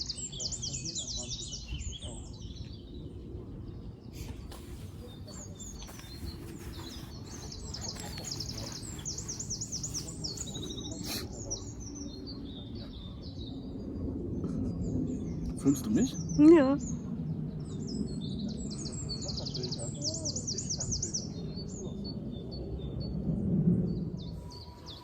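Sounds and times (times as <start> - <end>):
songbirds chirping: 0.0 - 25.0
steady low rumble: 1.1 - 19.9.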